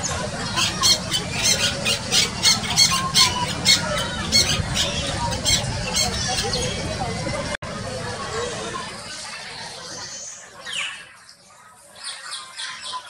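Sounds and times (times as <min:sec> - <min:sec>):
parakeet screeching: 0:00.5 - 0:06.7.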